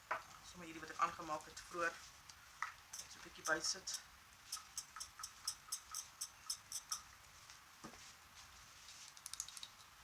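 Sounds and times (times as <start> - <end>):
brush ticking against glass: 2.9 - 7.1.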